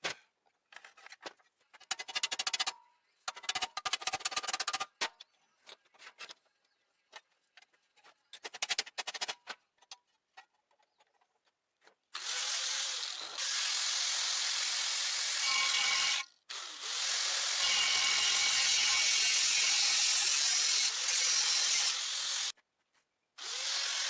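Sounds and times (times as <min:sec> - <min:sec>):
power tool grinding metal: 0:12.2 - 0:22.5, 0:23.4 - 0:24.0.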